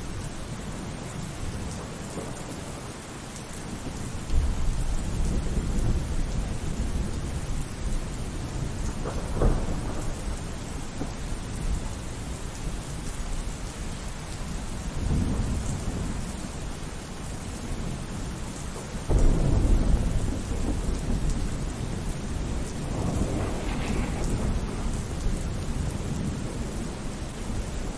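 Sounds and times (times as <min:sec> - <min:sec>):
steady rain: 0:00.0 - 0:27.9
thunder: 0:03.8 - 0:12.3, 0:18.8 - 0:27.9.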